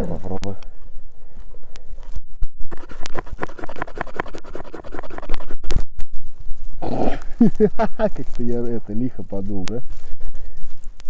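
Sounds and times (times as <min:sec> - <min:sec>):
striker scraping fire steel rod: 0:02.7 - 0:05.6.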